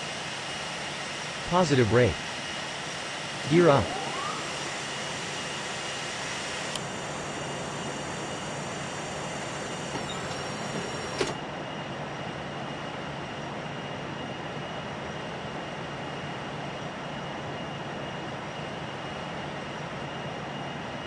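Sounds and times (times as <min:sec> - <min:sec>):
faint high whine: 0:00.0 - 0:21.0
jet engine and cabin airflow: 0:00.0 - 0:21.0.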